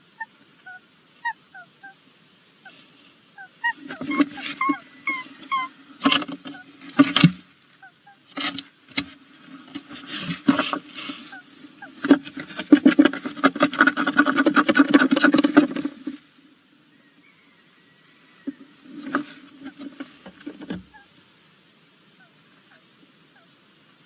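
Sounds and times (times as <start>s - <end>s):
owl scratching and rustling: 2.6s - 16.3s, 18.4s - 21.2s.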